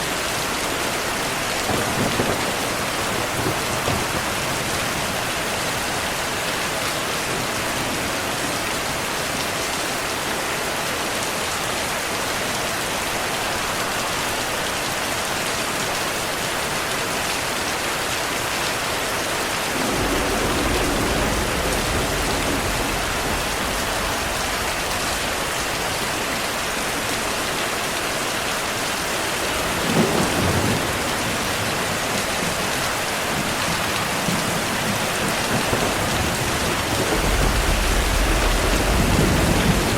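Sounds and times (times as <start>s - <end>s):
heavy rain falling: 0.0s - 39.9s
thunder rumbling: 1.6s - 9.0s, 19.5s - 27.6s, 29.5s - 39.9s.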